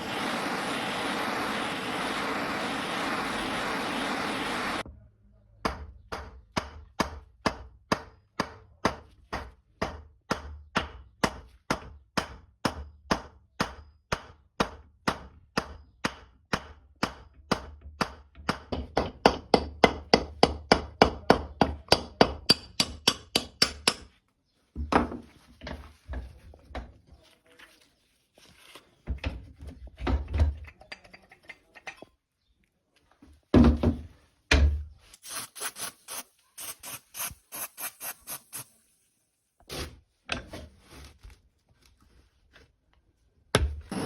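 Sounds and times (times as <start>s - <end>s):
steady noise: 0.0s - 4.8s.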